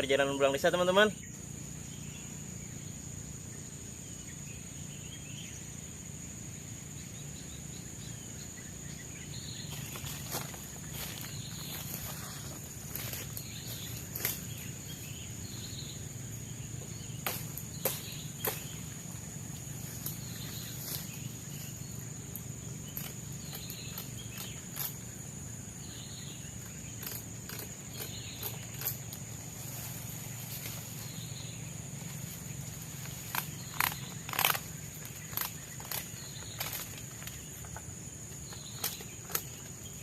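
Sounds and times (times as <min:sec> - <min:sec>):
high-pitched insect drone: 0:00.0 - 0:40.0
footsteps through undergrowth: 0:09.6 - 0:15.2, 0:17.2 - 0:21.9, 0:28.0 - 0:37.5
sharp cracks of twigs: 0:09.7 - 0:15.0, 0:17.2 - 0:21.7, 0:22.3 - 0:25.2, 0:26.6 - 0:29.4, 0:32.9 - 0:37.9, 0:38.5 - 0:39.9.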